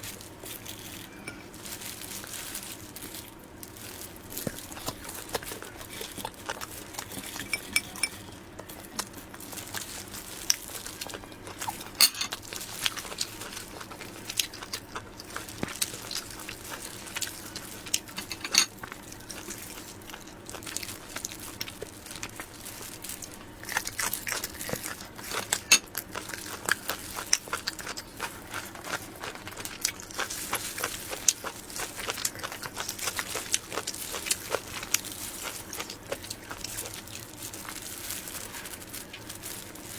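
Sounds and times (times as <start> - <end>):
utensil clinking on dishware: 7.3 - 8.3, 12.0 - 12.4, 18.2 - 18.8
wet chewing and mouth clicks: 12.6 - 37.8.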